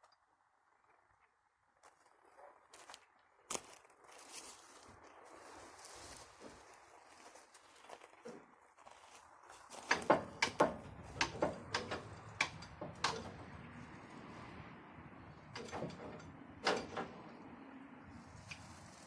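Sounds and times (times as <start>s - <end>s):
tool banging on metal: 9.8s - 13.5s, 15.6s - 17.2s.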